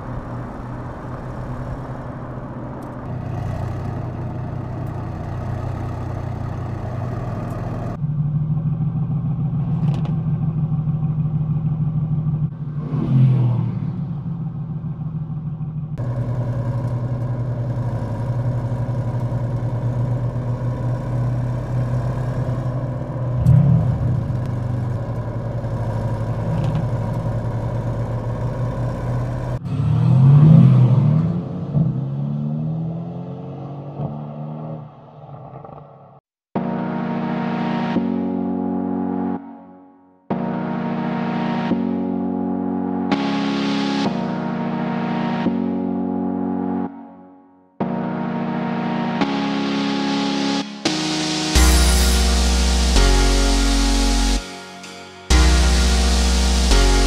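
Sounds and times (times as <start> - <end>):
car engine revving: 0.0 - 36.2
car engines running: 0.0 - 36.2, 50.8 - 54.4.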